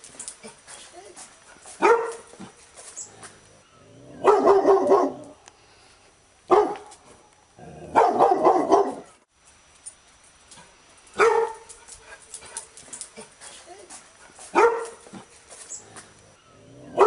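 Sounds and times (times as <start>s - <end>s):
dog barking: 1.8s - 2.3s, 4.2s - 5.4s, 6.5s - 6.9s, 7.9s - 9.2s, 11.2s - 11.7s, 14.5s - 15.2s.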